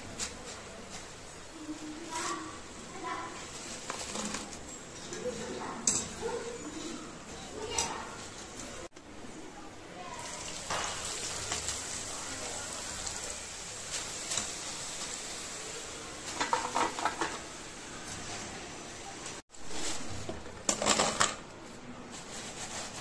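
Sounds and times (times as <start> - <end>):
metal utensils clattering: 2.2 - 8.9, 16.2 - 18.6, 19.7 - 23.0
fries sizzling in hot oil: 9.9 - 21.0.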